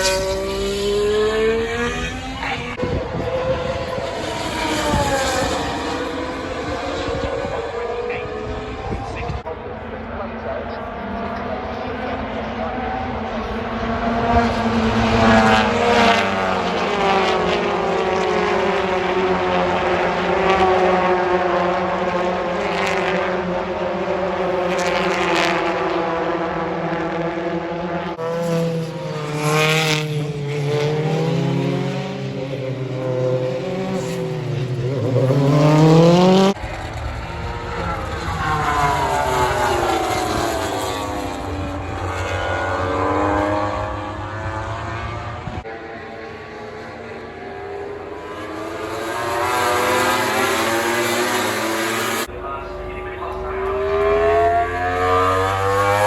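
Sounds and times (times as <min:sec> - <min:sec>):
racing engines passing at speed: 0:00.0 - 0:56.0
engine revving through gear changes: 0:24.8 - 0:45.7, 0:47.2 - 0:52.3, 0:53.2 - 0:56.0.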